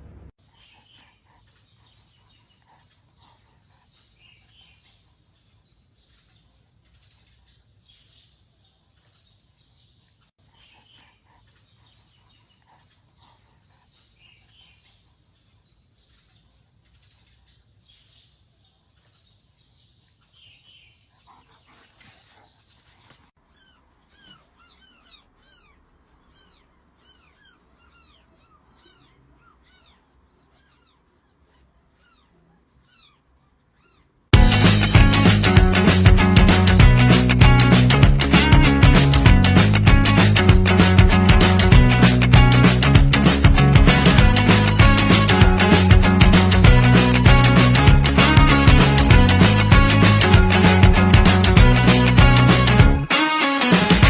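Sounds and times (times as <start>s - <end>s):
high chirping calls: 23.4s - 35.6s.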